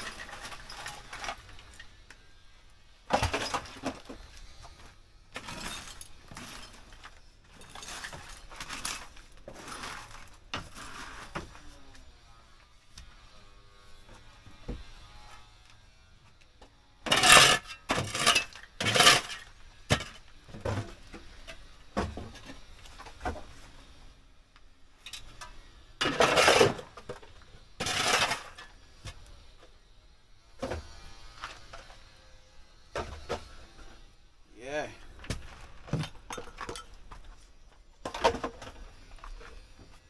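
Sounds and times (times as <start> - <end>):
objects clattering and scraping: 0.0 - 1.9, 3.1 - 12.0, 17.1 - 24.1, 25.0 - 29.7, 30.6 - 34.2, 35.0 - 40.0.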